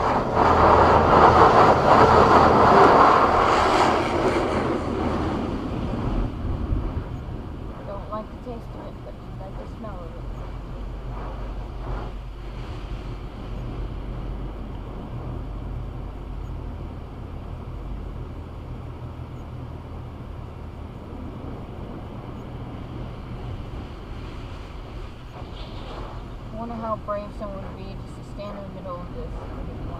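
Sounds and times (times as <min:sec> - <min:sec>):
car wash spraying water: 0:00.0 - 0:06.0, 0:24.0 - 0:29.9
low hum: 0:00.0 - 0:29.9.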